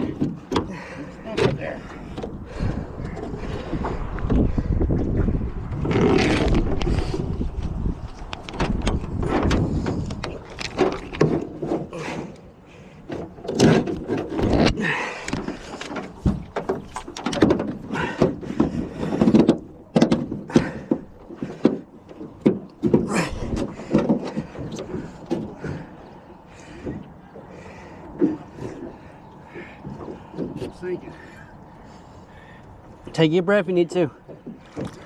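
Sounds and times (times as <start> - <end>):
knocks thuds and scrapes: 5.7 - 7.4, 8.5 - 12.0, 13.1 - 25.9.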